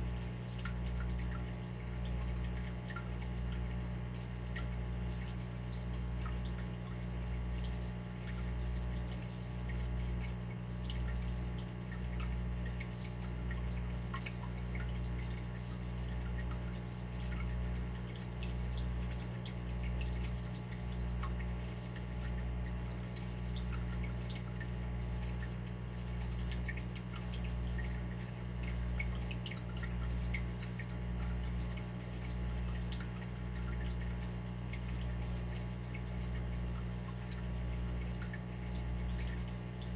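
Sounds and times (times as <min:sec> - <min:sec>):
water drips: 0:00.0 - 0:39.9.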